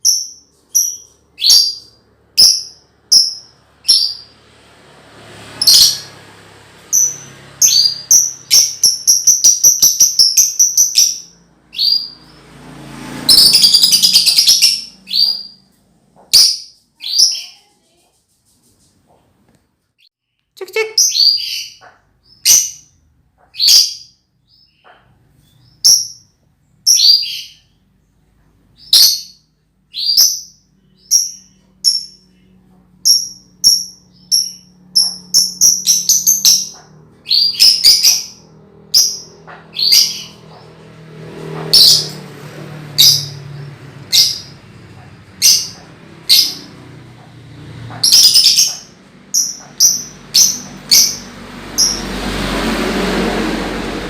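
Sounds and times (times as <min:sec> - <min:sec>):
lovebird shrill chirps: 0:00.0 - 0:04.3, 0:05.6 - 0:06.2, 0:06.9 - 0:12.4, 0:13.3 - 0:15.6, 0:33.1 - 0:40.5, 0:48.0 - 0:52.0.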